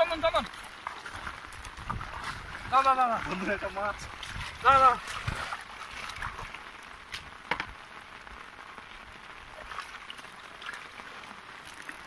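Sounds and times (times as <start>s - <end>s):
sharp splashes: 0.0s - 7.3s, 9.4s - 12.0s
rain falling on water: 0.0s - 12.0s.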